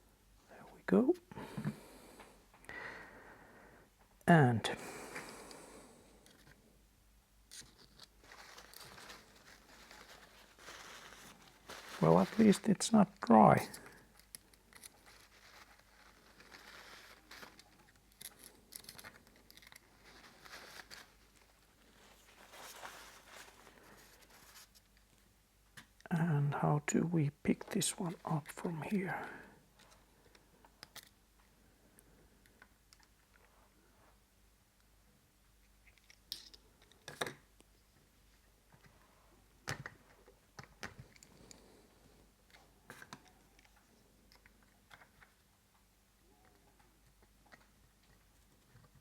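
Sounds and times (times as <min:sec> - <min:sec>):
rustling: 0:07.4 - 0:25.3.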